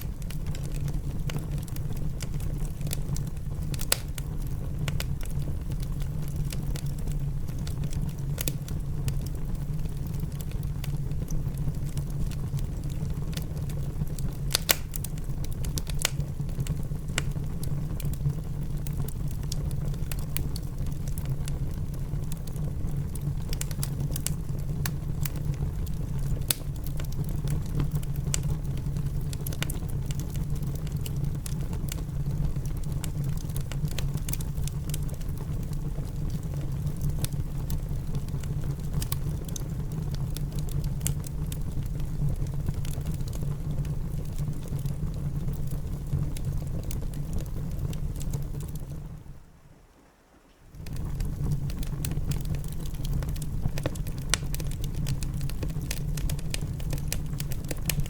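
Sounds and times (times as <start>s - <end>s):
rain rumble heard indoors: 0.0s - 58.0s
wood fire crackling: 0.0s - 58.0s.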